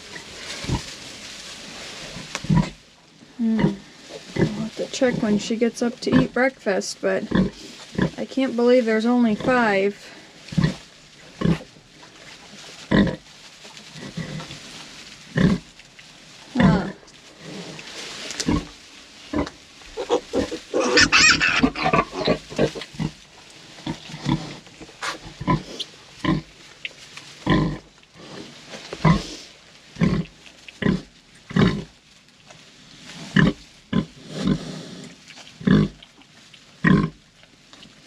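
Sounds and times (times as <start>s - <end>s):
pig grunting: 19.4s - 23.1s
pig squealing: 20.0s - 22.8s.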